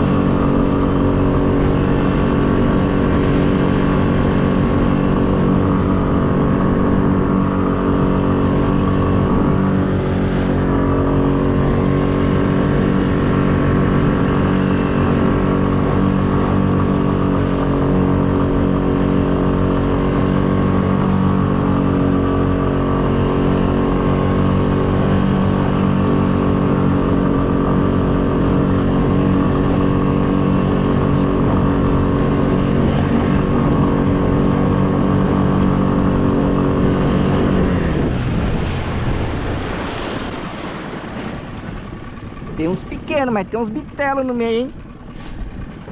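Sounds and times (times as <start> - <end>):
boat motor running: 0.0 - 45.9.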